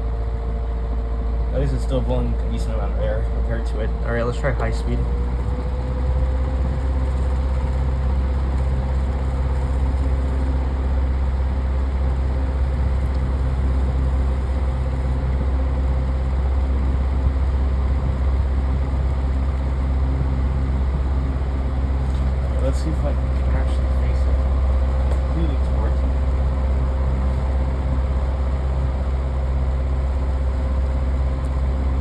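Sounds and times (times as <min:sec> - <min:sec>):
electric fan humming: 0:00.0 - 0:32.0
fan blades rushing air: 0:00.0 - 0:32.0.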